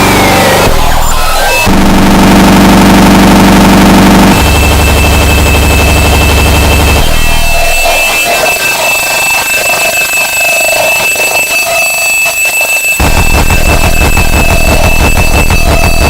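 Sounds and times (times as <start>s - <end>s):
pulsing alarm-like tone: 0.0s - 16.0s
shrill electronic tone: 0.0s - 16.0s
heavy kick drum: 0.6s - 6.1s, 13.0s - 16.0s.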